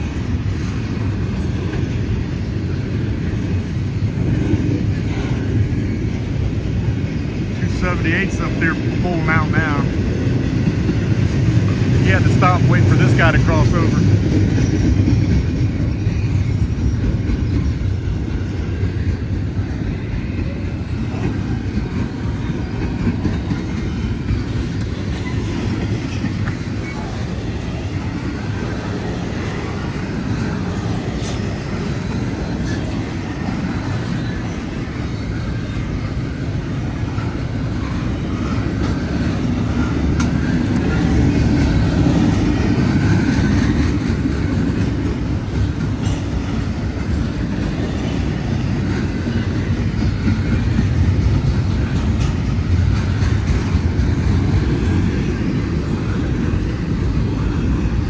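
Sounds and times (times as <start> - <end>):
freight train rumbling past: 0.0 - 58.0
wheels clacking over rail joints: 12.6 - 58.0.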